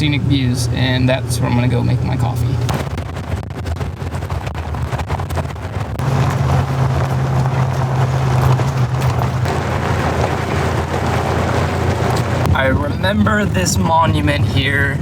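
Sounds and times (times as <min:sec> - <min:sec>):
truck engine droning: 0:00.0 - 0:15.0.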